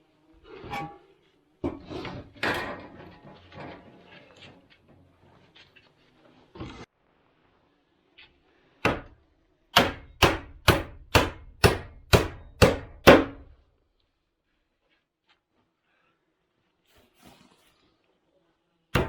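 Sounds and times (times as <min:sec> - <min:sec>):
hammer striking wood: 0:08.8 - 0:13.5.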